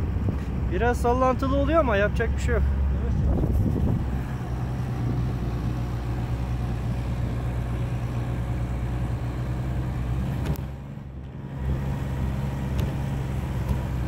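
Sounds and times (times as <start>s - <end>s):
vehicle engine running under load: 0.0s - 14.0s.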